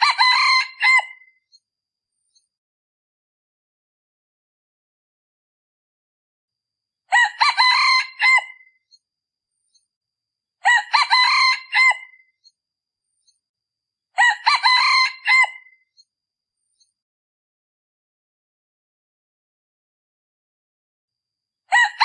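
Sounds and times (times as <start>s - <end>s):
rooster crowing: 0.0s - 1.2s, 7.1s - 8.7s, 10.6s - 12.2s, 14.2s - 15.8s, 21.7s - 22.0s.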